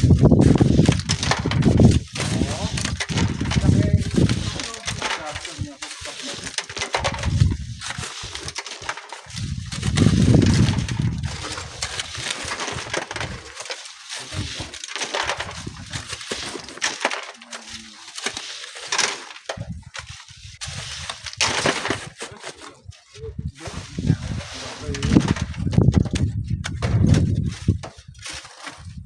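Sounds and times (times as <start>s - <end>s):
wind buffeting microphone: 0.0s - 5.0s, 7.0s - 8.5s, 9.3s - 12.2s, 23.2s - 29.0s
sand and stones crunching: 0.0s - 29.0s.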